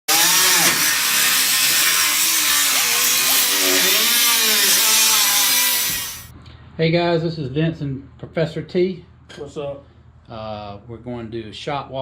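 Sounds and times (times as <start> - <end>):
power tool running: 0.1 - 6.3.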